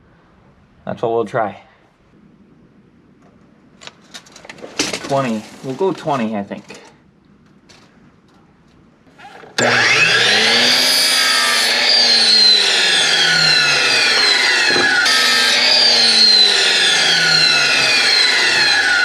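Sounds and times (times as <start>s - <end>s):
power saw cutting wood: 9.2s - 19.0s.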